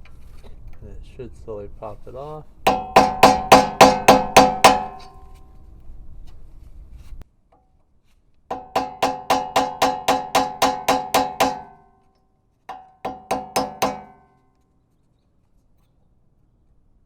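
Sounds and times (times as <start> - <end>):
hammer tapping on screwdriver: 2.7 - 5.2, 8.5 - 11.8, 12.7 - 14.2.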